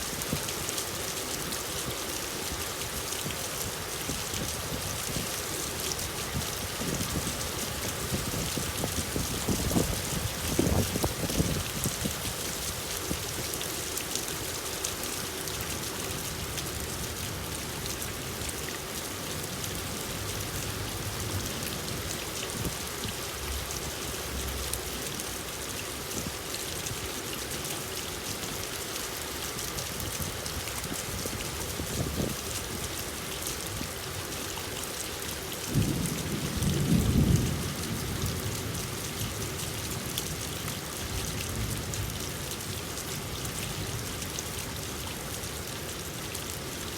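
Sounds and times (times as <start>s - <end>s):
heavy rain falling: 0.0s - 46.9s
low thunder rumble: 35.7s - 38.8s.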